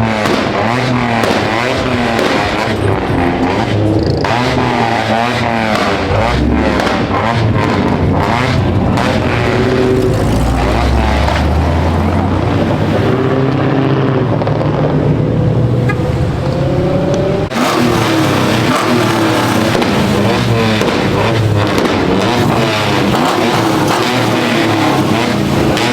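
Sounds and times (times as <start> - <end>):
car engine revving: 0.0 - 25.9
car engines running: 0.0 - 25.9.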